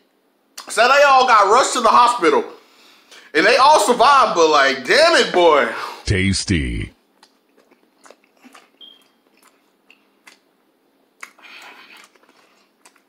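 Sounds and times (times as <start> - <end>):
man chewing soft food: 7.2 - 13.0.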